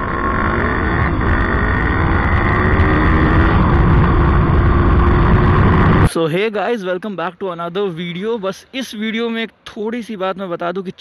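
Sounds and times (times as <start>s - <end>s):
heavy low rumble: 0.0s - 6.1s
motorcycle engine running at speed: 0.0s - 6.1s.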